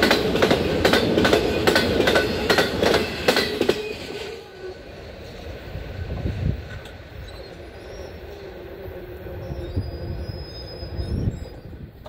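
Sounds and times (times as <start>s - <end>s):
freight train rumble: 0.0s - 12.0s
faint high wheel squeal: 7.1s - 11.9s.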